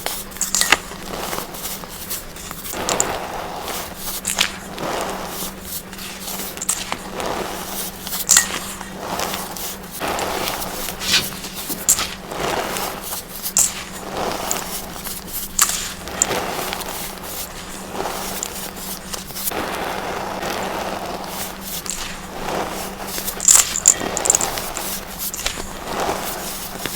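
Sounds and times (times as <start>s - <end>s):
baking soda chunks crunching: 3.9s - 19.4s, 21.7s - 25.8s
sharp crackles: 11.0s - 12.2s.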